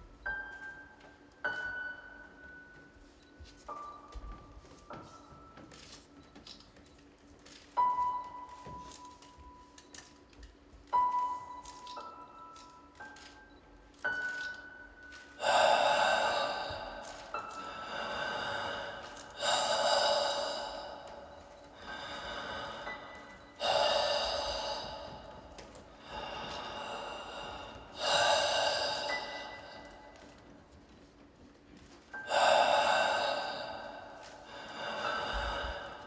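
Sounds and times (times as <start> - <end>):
soft breaths: 14.2 - 36.0
person gasping loudly: 15.4 - 30.3, 32.2 - 36.0.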